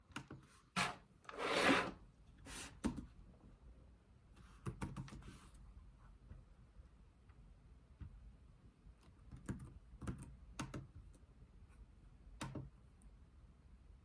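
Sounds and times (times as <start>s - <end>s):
objects sliding on desk: 0.8s - 2.7s.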